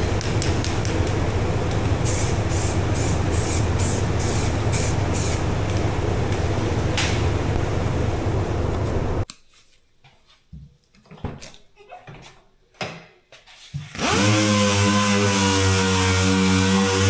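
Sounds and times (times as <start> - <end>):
machine humming: 0.0 - 9.2
rhythmic hissing strokes: 1.9 - 6.3.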